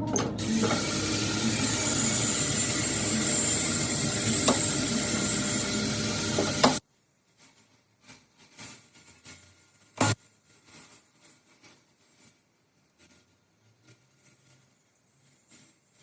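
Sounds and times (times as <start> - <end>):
hissing machine noise: 0.1 - 6.8.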